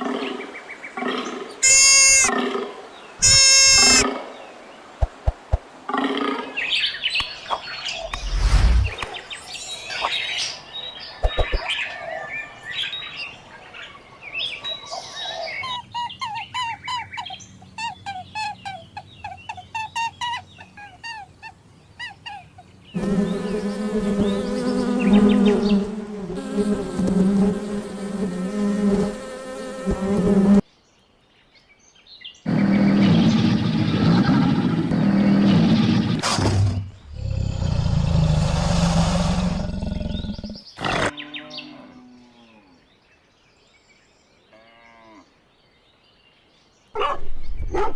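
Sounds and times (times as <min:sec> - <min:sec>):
mix of animal calls: 0:00.0 - 0:04.3
long steady pitched call: 0:01.6 - 0:02.3, 0:03.2 - 0:04.1
short repeated chirps: 0:01.6 - 0:02.3, 0:03.2 - 0:04.0.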